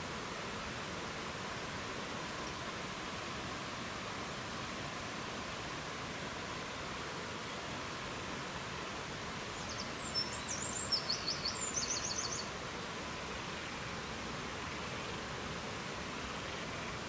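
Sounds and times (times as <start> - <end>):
rushing hiss of nature ambience: 0.0 - 17.0
songbird chirping and trilling: 9.7 - 12.5.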